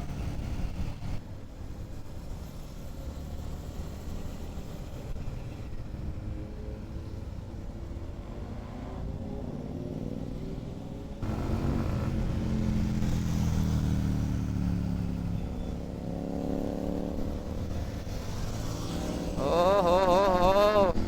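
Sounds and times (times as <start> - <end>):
motorcycle engine running: 11.2 - 21.0.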